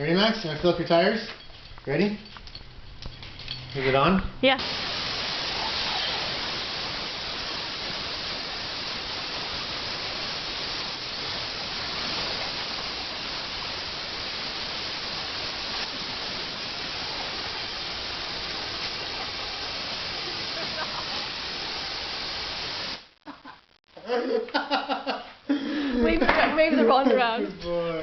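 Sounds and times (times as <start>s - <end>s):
compressed air hissing: 4.6s - 23.1s.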